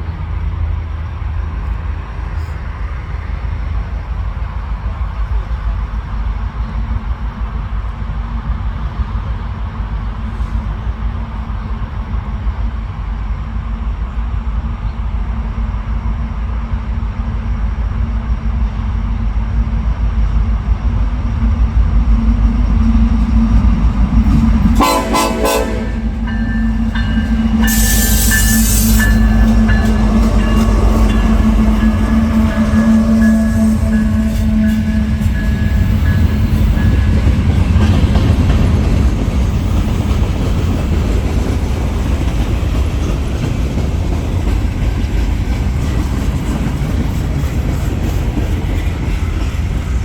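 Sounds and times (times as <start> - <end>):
train rumble: 0.0 - 50.0
train horn blast: 24.2 - 37.1
high hiss: 26.8 - 31.8.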